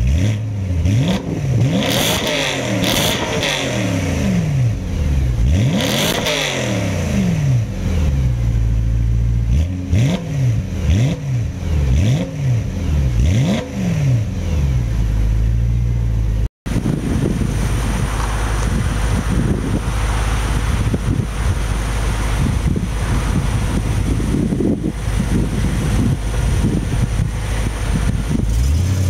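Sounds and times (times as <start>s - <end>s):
car engine revving: 0.0s - 29.0s
wind noise: 1.0s - 8.6s, 16.7s - 29.0s.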